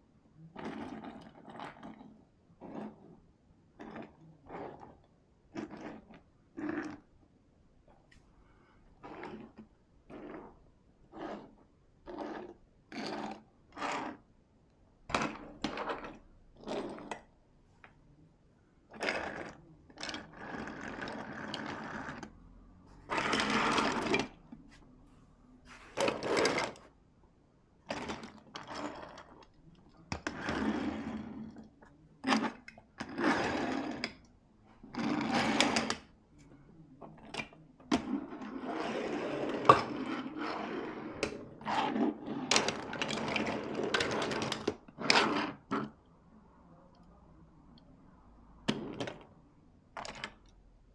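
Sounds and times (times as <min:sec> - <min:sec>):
toy cars rolling and rattling: 0:19.0 - 0:22.3, 0:23.1 - 0:24.4, 0:25.9 - 0:26.9, 0:37.4 - 0:45.9
toy cars clicking and knocking: 0:50.0 - 0:50.5.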